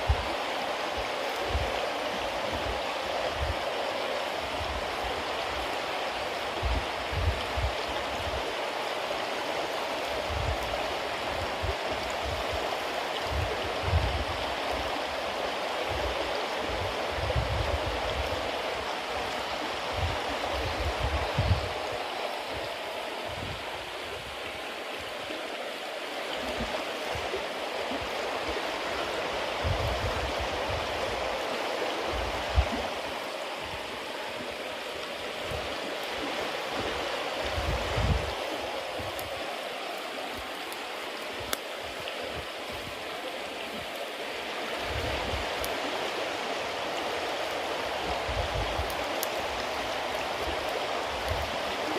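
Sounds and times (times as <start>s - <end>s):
bonfire hissing and crackling: 0.0s - 51.9s
fire popping: 37.4s - 44.2s, 47.0s - 51.9s.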